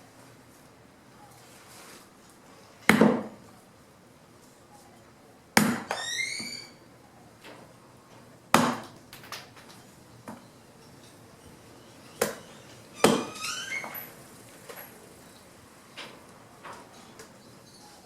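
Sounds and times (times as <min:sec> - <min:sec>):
chopping strikes into wood: 0:02.9 - 0:03.3, 0:05.6 - 0:05.8, 0:08.6 - 0:08.9.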